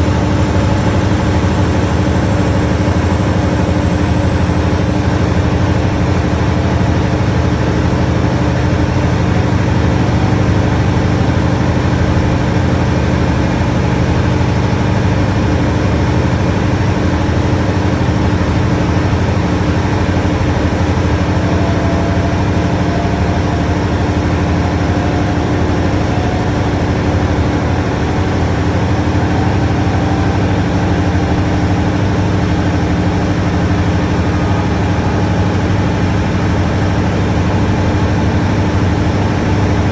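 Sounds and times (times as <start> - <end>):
diesel engine drone: 0.0 - 39.9
thin high whistle: 19.6 - 33.3.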